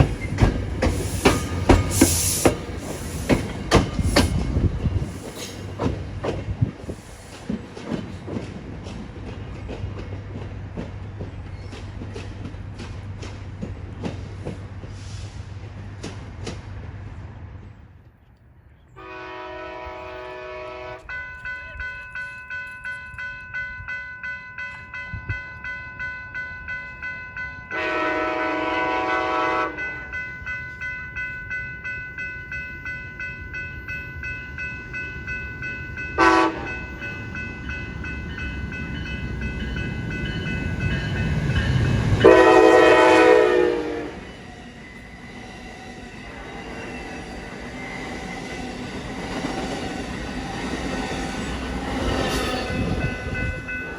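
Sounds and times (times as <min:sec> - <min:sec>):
crossing bell ringing: 0:00.0 - 0:04.7, 0:19.2 - 0:53.9
train rumble: 0:00.0 - 0:18.2, 0:19.0 - 0:53.9
locomotive air horn: 0:19.0 - 0:21.1, 0:27.7 - 0:30.0, 0:36.2 - 0:36.7, 0:42.2 - 0:44.3.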